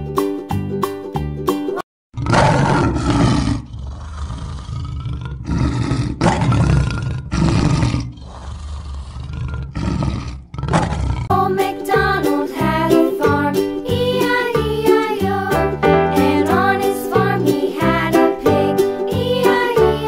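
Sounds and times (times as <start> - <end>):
big cat roaring: 2.2 - 11.3.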